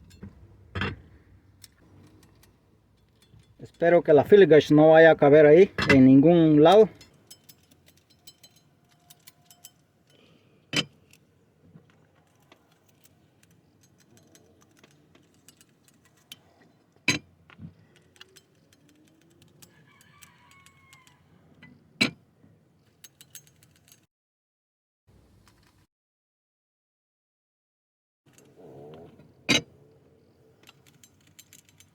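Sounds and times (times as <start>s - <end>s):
metal blades clinking: 5.8s - 11.4s, 12.0s - 21.0s.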